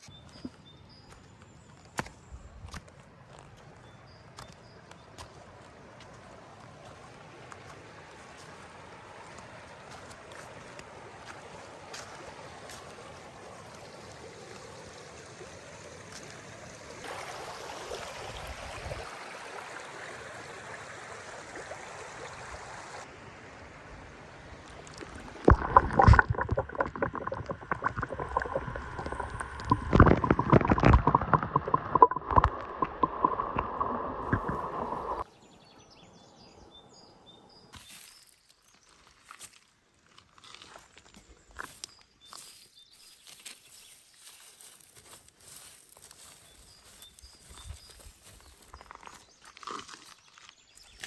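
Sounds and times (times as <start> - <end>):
small water splashes: 0.0 - 23.1, 24.4 - 35.3, 37.5 - 51.0
water sloshing and gurgling: 24.6 - 35.3.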